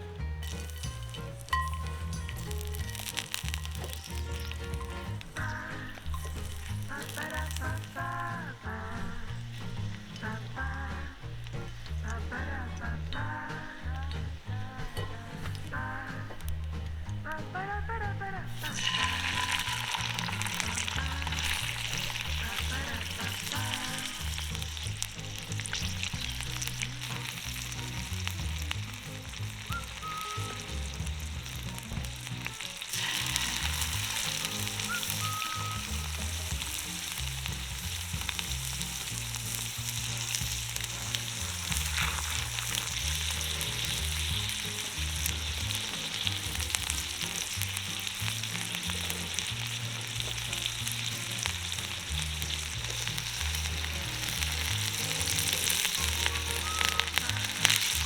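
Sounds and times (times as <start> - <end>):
fish sizzling in hot oil: 0.0 - 58.0.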